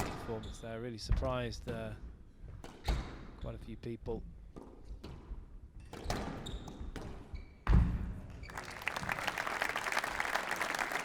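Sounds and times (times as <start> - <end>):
crowd applauding: 8.4 - 11.0.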